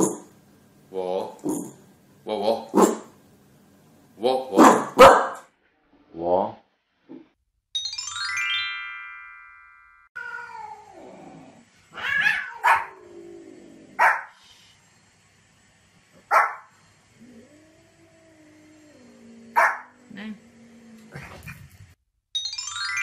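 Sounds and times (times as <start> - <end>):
small dog barking sharply: 4.6 - 5.4, 12.6 - 12.9, 14.0 - 14.3
descending chime run: 7.8 - 10.0, 22.4 - 23.0
cat meowing: 10.2 - 11.1, 11.9 - 13.0.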